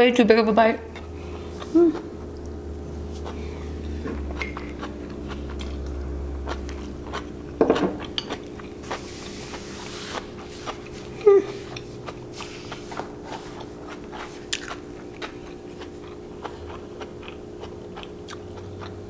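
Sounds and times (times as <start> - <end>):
steady low hum: 0.0 - 19.0
chewing noodles: 0.9 - 19.0
person humming mm: 1.6 - 2.1, 11.2 - 11.8.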